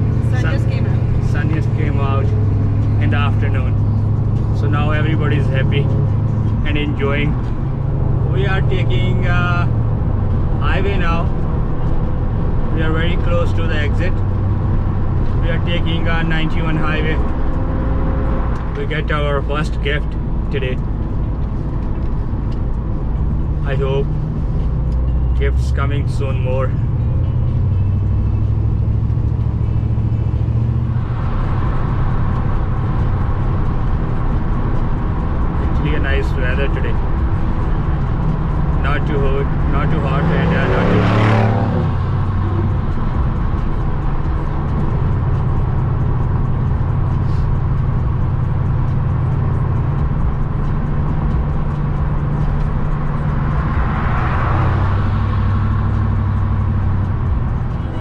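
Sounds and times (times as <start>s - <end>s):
pickup engine and road drone: 0.0s - 58.0s
road hiss: 47.0s - 47.7s.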